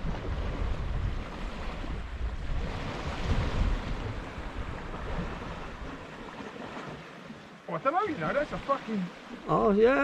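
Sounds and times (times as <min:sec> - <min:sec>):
wind buffeting microphone: 0:00.0 - 0:06.9
surf on rocky shore: 0:00.0 - 0:10.0.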